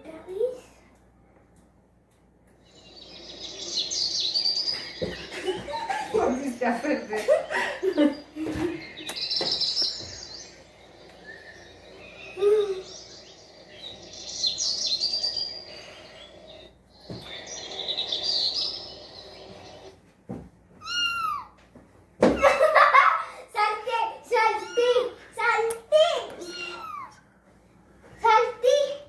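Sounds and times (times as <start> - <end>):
high-pitched bird chirping: 2.6 - 20.0, 20.8 - 21.6, 24.4 - 25.1, 26.2 - 27.2.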